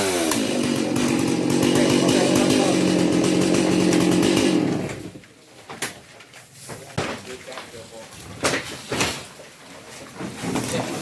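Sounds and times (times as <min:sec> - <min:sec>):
chainsaw running: 0:00.0 - 0:05.2.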